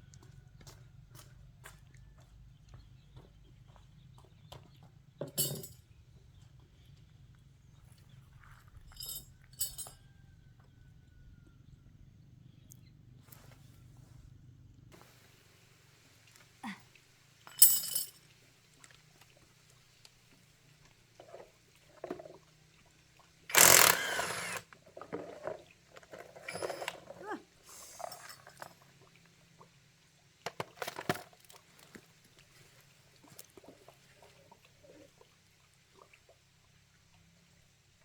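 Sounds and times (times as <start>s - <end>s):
metal tools clinking and scraping: 5.2s - 5.8s, 8.9s - 10.0s, 17.5s - 18.2s, 23.5s - 28.8s.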